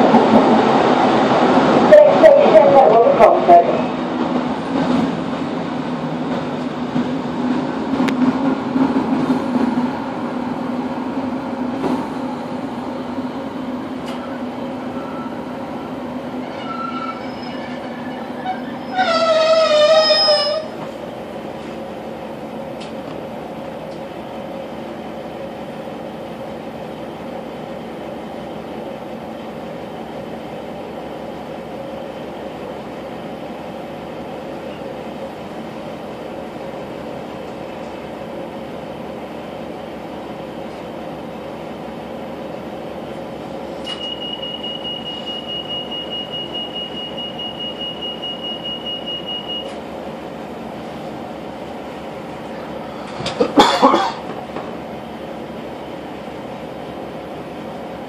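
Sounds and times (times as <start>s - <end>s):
high-pitched pulsing beep: 43.9s - 49.7s.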